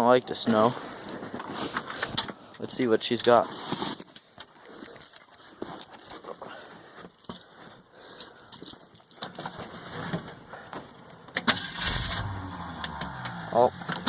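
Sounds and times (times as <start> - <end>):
keys jangling: 4.0 - 7.5, 8.1 - 9.5.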